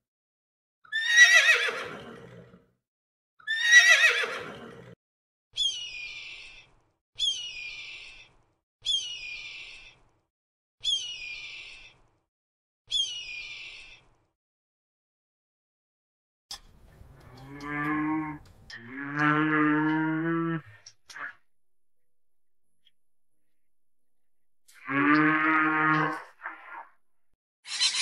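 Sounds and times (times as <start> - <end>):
horse whinnying: 0.9 - 2.6, 3.4 - 5.0.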